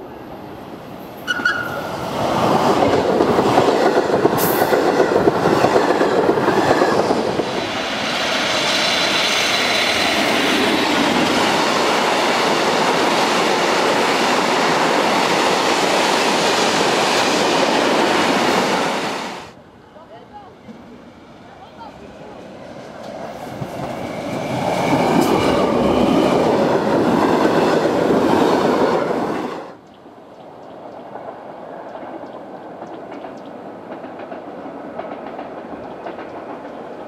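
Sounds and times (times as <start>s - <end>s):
freight train rolling past: 0.0s - 37.0s
passenger train passing: 0.0s - 37.0s.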